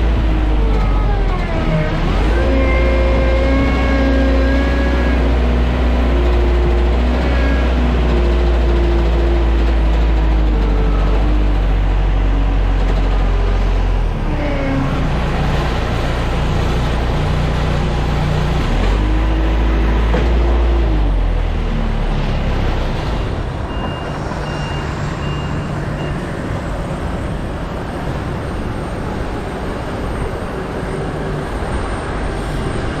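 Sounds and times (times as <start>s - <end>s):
vehicle engines revving: 0.0s - 33.0s
high reversing beeps: 23.7s - 26.4s.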